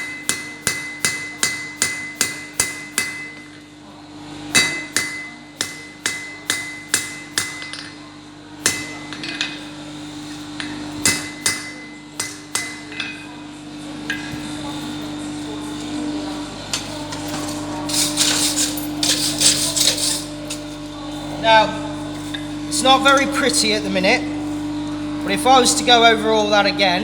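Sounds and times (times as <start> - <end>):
hammer ringing on anvil: 0.0 - 3.6, 4.5 - 13.4, 14.0 - 15.6
steady low hum: 0.0 - 27.0.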